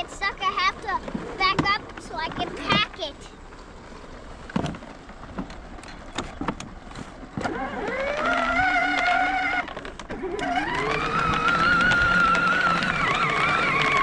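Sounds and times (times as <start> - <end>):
ride-on toy electric motor whining: 7.4 - 14.0.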